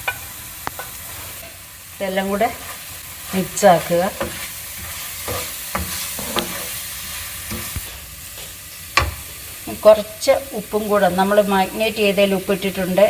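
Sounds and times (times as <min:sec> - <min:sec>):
food sizzling in oil: 0:00.0 - 0:13.0
utensil scraping and knocking pan: 0:02.6 - 0:09.2.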